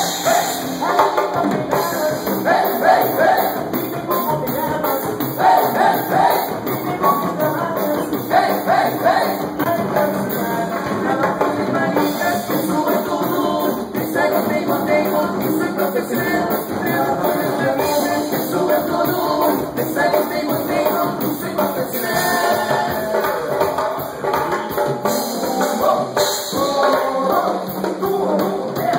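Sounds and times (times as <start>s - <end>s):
live band playing: 0.0s - 28.9s.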